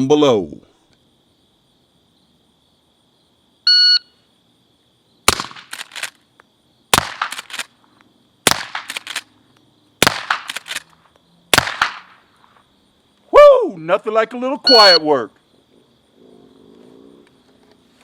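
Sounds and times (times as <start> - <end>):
suppressed rifle shots: 5.3 - 6.2, 6.9 - 7.7, 8.4 - 9.3, 10.0 - 10.9, 11.5 - 12.2
shot timer beep: 14.7 - 15.0.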